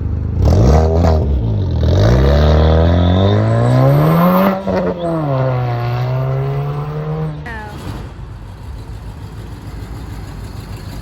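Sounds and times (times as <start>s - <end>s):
car engine revving: 0.1s - 8.2s.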